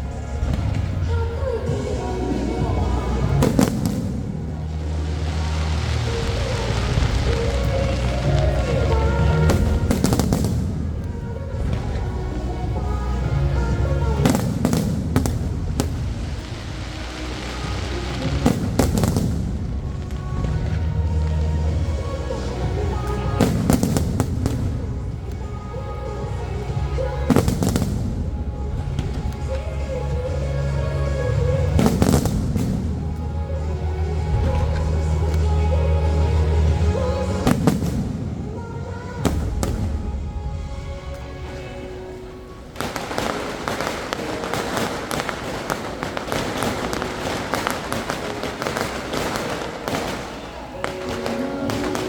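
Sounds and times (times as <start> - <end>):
fireworks bangs and crackles: 0.0 - 52.0
music playing: 0.0 - 52.0.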